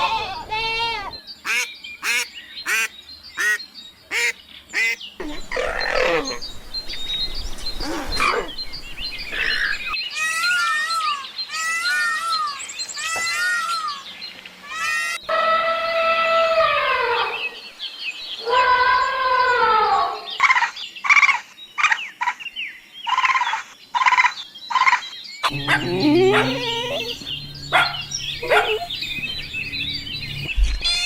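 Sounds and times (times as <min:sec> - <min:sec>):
birds calling: 0:01.1 - 0:10.0, 0:24.3 - 0:31.0.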